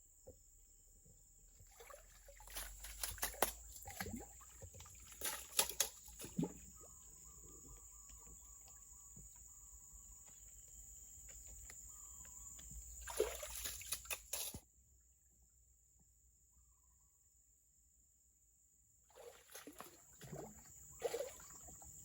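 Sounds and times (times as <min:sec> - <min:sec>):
water sloshing and splashing: 0:01.6 - 0:08.8, 0:13.0 - 0:14.6, 0:19.1 - 0:22.0.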